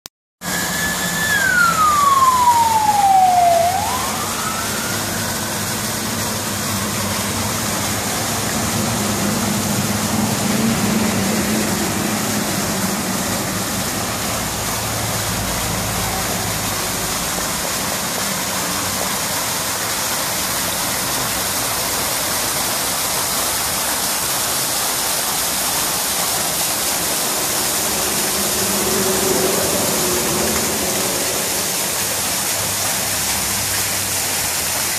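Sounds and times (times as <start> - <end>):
siren-like gliding tone: 0.4 - 17.3, 25.4 - 32.7
water pouring over waterfall: 0.4 - 34.9.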